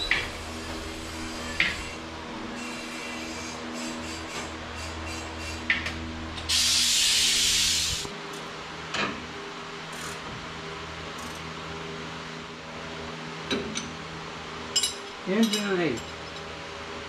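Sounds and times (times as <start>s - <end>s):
steady shop hum: 0.0s - 17.0s
loud hiss of spray: 6.5s - 8.1s.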